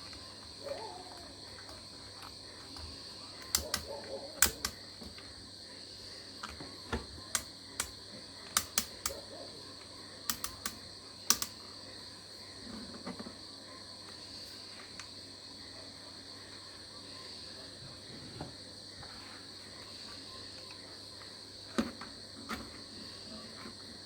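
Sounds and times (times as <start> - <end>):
sharp clicks and taps: 3.4 - 4.8, 7.3 - 9.2, 10.3 - 11.6.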